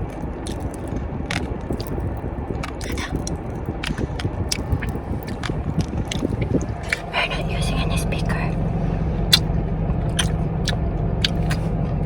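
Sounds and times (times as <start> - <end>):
popping candy crackling: 0.0 - 7.3
low rumble: 0.0 - 12.0.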